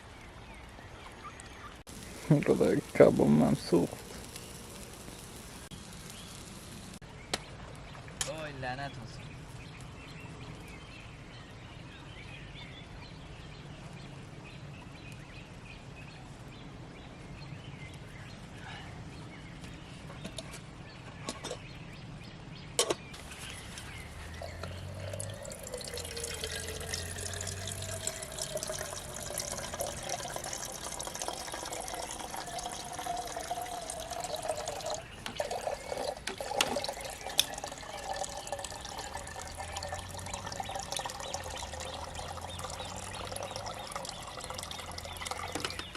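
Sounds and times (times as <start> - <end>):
water trickling and bubbling: 23.2 - 45.9.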